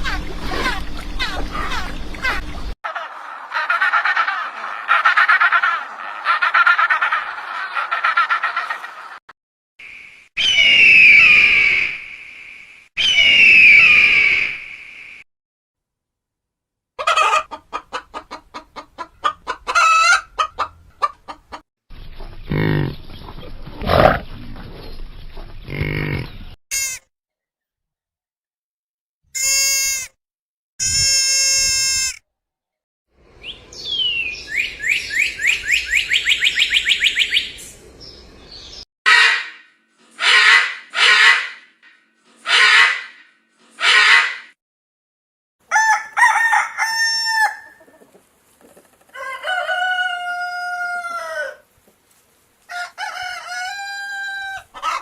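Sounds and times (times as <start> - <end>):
chicken clucking: 17.0 - 21.6, 47.7 - 51.6, 52.7 - 55.0.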